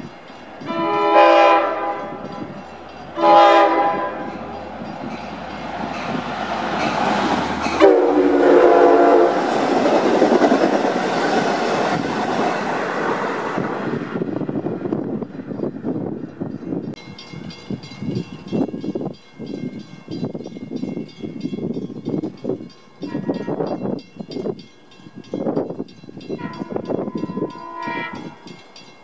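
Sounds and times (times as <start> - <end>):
train wheels rushing on track: 0.0 - 29.0
train horn blasts: 0.6 - 2.6, 3.2 - 4.5, 7.8 - 9.5, 23.1 - 23.7, 26.4 - 28.5.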